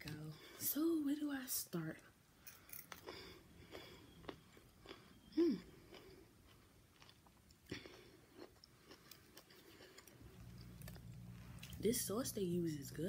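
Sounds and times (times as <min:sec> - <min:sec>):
chewing and biting food: 0:02.9 - 0:11.8.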